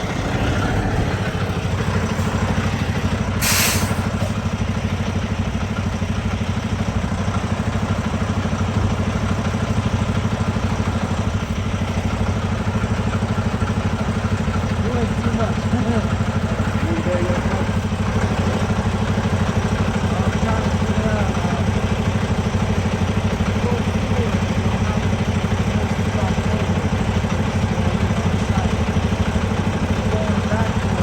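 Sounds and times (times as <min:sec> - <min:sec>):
vehicle engine idling: 0:00.0 - 0:31.0
short sharp hiss: 0:03.4 - 0:04.4.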